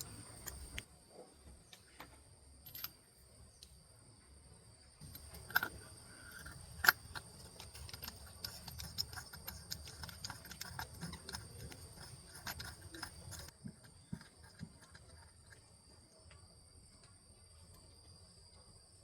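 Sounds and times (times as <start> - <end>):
metal clicks of hand tools: 0.0 - 0.8, 5.0 - 13.5.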